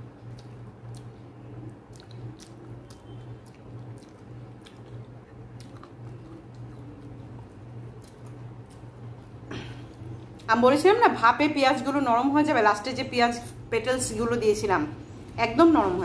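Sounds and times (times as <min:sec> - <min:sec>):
chewing with wet mouth clicks: 0:00.0 - 0:10.6
low steady hum: 0:00.0 - 0:16.0.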